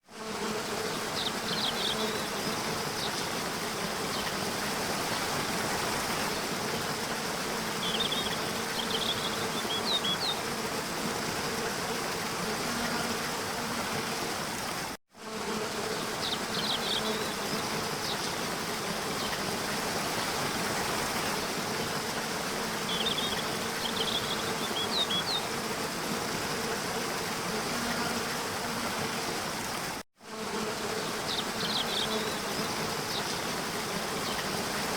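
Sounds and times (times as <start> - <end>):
birds chirping: 22.8 - 25.5.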